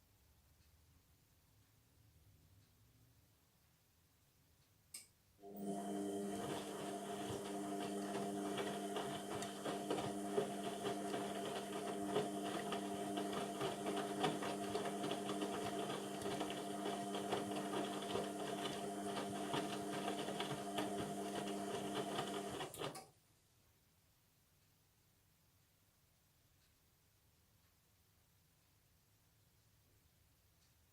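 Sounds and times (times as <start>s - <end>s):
washing machine drum turning: 5.6s - 22.9s.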